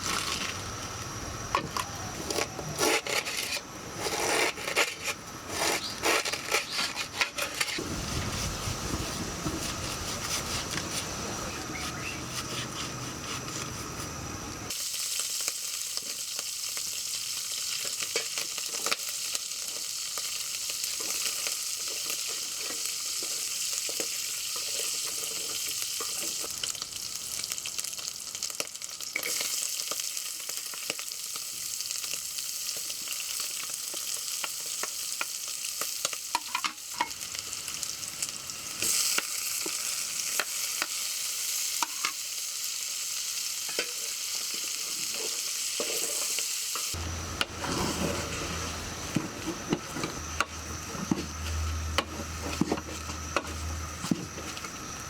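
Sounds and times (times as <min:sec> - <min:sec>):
utensil scraping a pan: 0:01.5 - 0:14.2, 0:43.7 - 0:54.8
food sizzling in a pan: 0:07.0 - 0:55.0.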